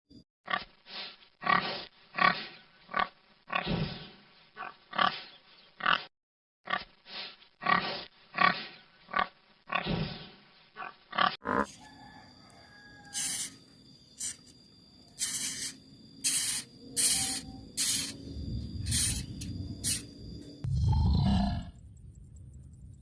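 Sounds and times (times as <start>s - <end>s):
pig grunting: 7.6s - 11.8s.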